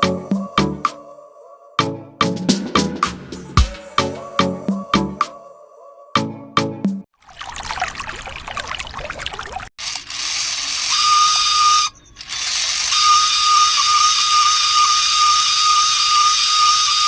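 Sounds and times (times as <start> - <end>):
small motor whining: 9.8 - 17.0.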